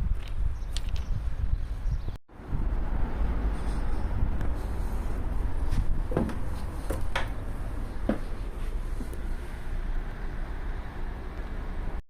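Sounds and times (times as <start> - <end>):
low outdoor rumble: 1.2 - 12.0
short knocks: 6.0 - 7.4, 8.0 - 8.4.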